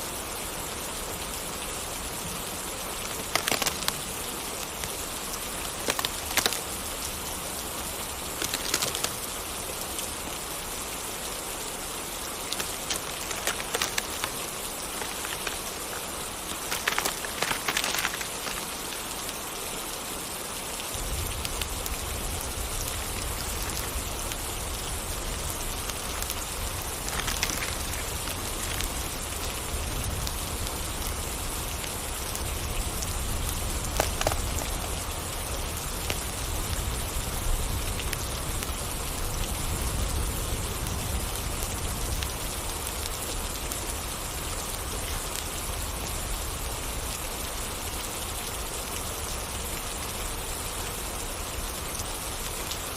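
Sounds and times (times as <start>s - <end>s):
steady rain falling: 0.0s - 52.9s
sharp cracks: 8.4s - 9.2s, 12.5s - 19.0s, 26.3s - 28.9s, 33.9s - 34.9s.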